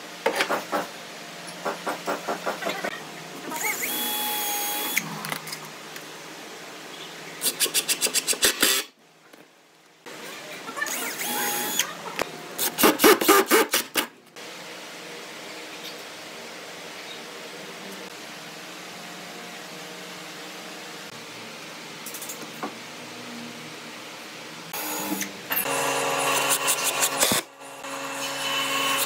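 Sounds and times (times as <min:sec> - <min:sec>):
power tool working wood: 0:03.5 - 0:05.2, 0:10.9 - 0:11.9, 0:24.8 - 0:29.0.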